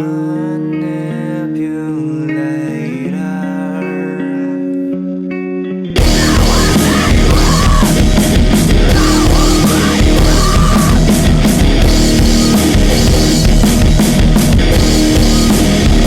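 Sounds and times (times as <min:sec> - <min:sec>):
drums hitting: 0:06.0 - 0:16.0
heavy rock band playing: 0:06.0 - 0:16.0.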